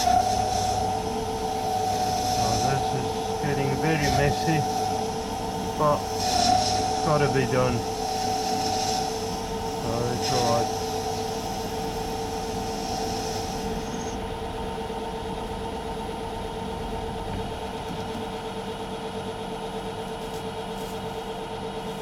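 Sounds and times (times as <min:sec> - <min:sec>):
lathe whining: 0:00.0 - 0:19.6
high hiss of metal cutting: 0:01.6 - 0:14.2.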